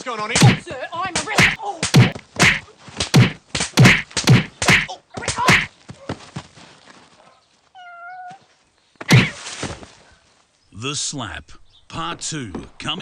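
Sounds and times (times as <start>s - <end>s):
loud slaps: 0.3s - 5.7s, 9.0s - 9.4s.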